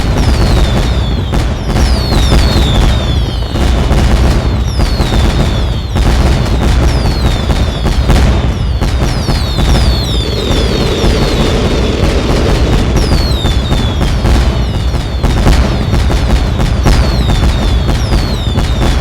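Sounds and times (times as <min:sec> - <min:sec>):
falling firework whistles: 0:00.0 - 0:19.0
fireworks bangs and crackling: 0:00.0 - 0:19.0
low rumble: 0:09.7 - 0:15.1.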